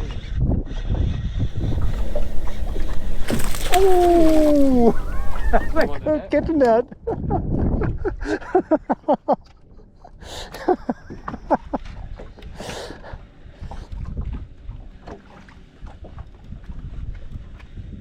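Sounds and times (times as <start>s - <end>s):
fish splashing in water: 1.5s - 6.0s.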